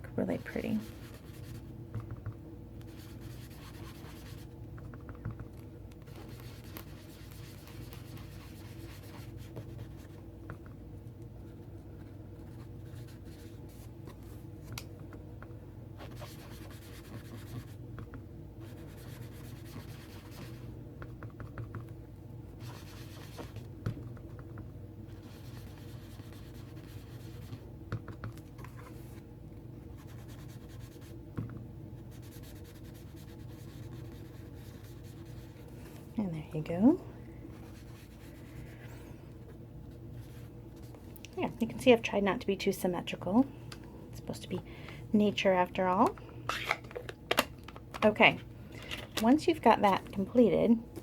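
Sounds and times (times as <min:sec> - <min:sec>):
steady low hum: 0:00.0 - 0:51.0
sponge scratching on cardstock: 0:02.9 - 0:04.5, 0:16.0 - 0:17.8, 0:18.6 - 0:20.7, 0:25.2 - 0:27.6, 0:32.1 - 0:35.6.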